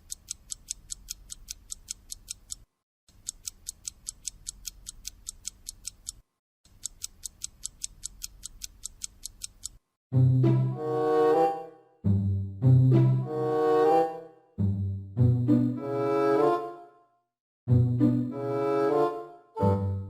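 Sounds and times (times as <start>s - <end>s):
fast ticking: 0.0s - 9.8s.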